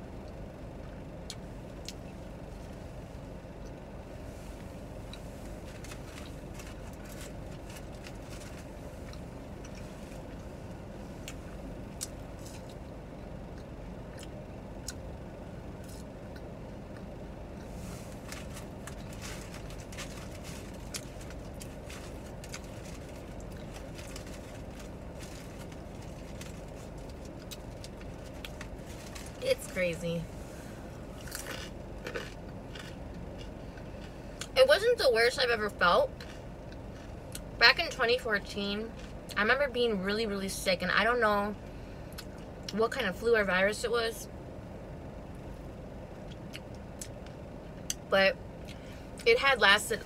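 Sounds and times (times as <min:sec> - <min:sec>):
low rumble in car cabin: 0:00.0 - 0:50.0
chewing sandwich crunches: 0:18.1 - 0:29.4, 0:31.2 - 0:34.5.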